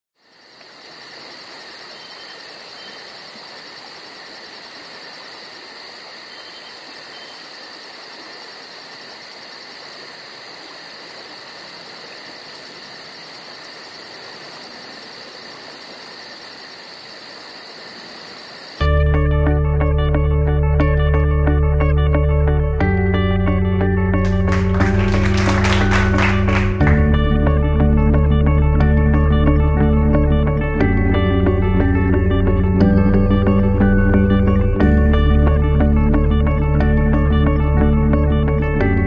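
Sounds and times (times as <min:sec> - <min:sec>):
crickets chirping: 0:00.2 - 0:18.9.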